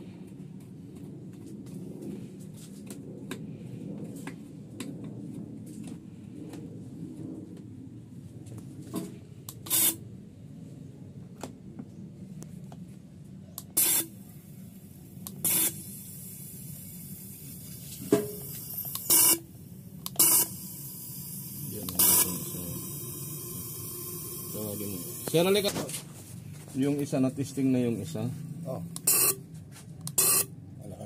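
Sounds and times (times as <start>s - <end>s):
low steady hum: 0.0s - 31.0s
pressurized spray hissing: 13.7s - 25.7s.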